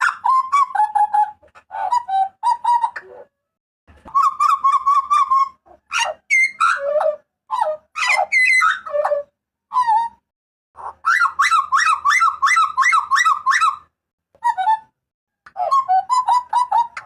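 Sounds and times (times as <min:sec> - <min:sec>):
butcherbird calls: 0:03.9 - 0:10.2, 0:10.8 - 0:14.9, 0:15.5 - 0:17.0.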